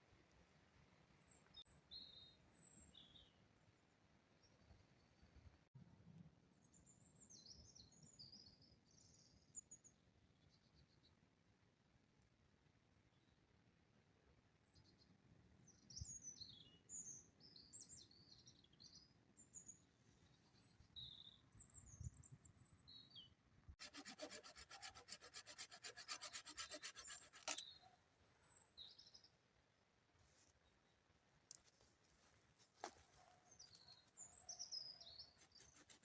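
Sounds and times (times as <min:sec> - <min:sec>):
small birds chirping: 0:33.4 - 0:36.0.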